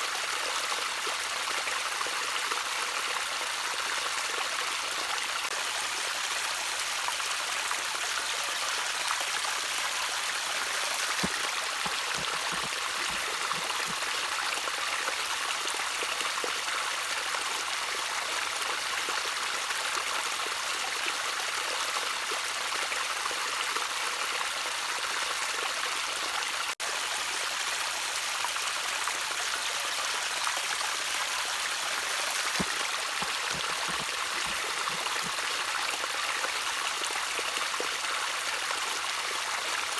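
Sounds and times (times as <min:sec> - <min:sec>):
stream trickling: 0:00.1 - 0:39.9
water plinks and gurgles: 0:10.8 - 0:14.2, 0:32.2 - 0:35.6.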